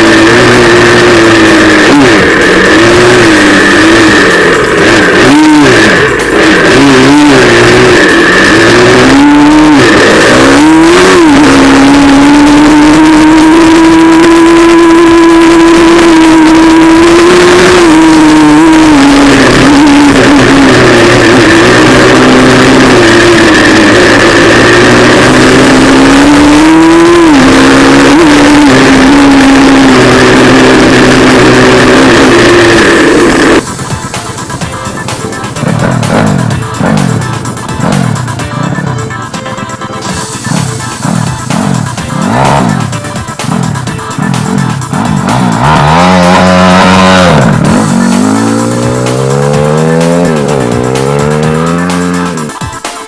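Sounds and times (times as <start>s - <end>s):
loud motorbike engine revving: 0.0s - 53.0s.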